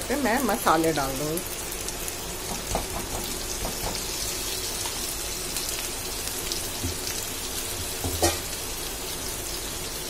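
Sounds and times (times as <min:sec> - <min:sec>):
food frying in hot oil: 0:00.0 - 0:10.0.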